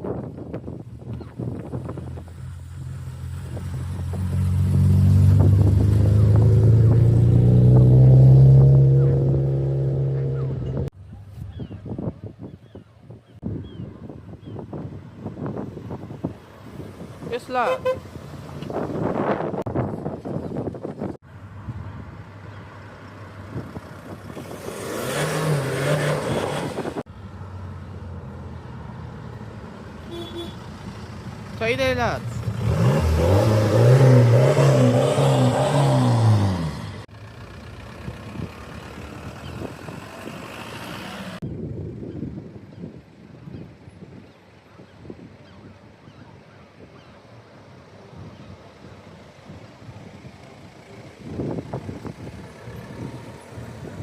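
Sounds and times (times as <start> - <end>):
car engine and exhaust: 0.0 - 54.0
car engine revving with wavering note: 3.8 - 10.9, 32.4 - 37.1.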